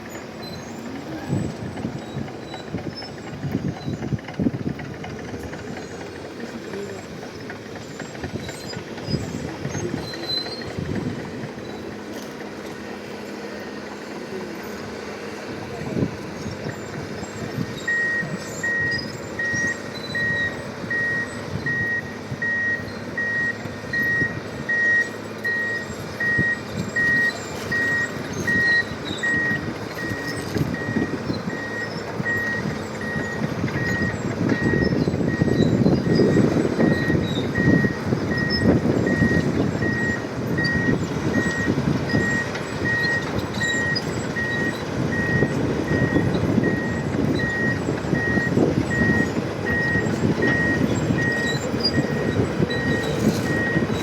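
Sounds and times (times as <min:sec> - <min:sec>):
bulldozer diesel engine: 0:00.0 - 0:54.0
reversing alarm beeping: 0:16.0 - 0:54.0.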